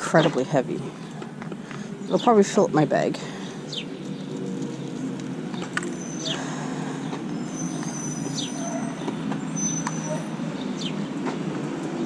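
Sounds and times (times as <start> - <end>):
rumble of passing traffic: 0.0 - 12.0
falling bird-like chirp: 5.8 - 11.0.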